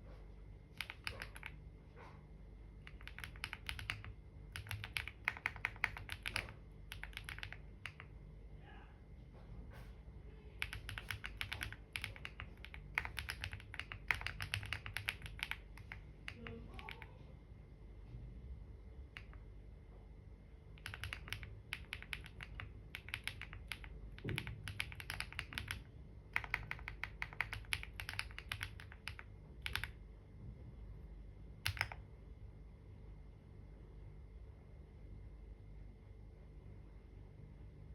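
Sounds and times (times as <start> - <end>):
computer keyboard typing: 0.7 - 1.7, 2.8 - 8.2, 10.6 - 17.2, 19.0 - 19.5, 20.8 - 30.0, 31.6 - 32.1.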